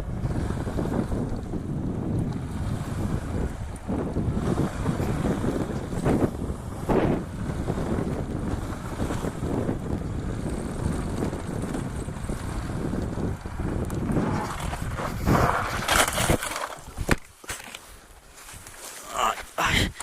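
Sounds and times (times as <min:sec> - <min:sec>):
road rumble: 0:00.0 - 0:18.5
wind rushing over microphone: 0:00.0 - 0:20.0
motorcycle crash bangs and scrapes: 0:14.1 - 0:17.7.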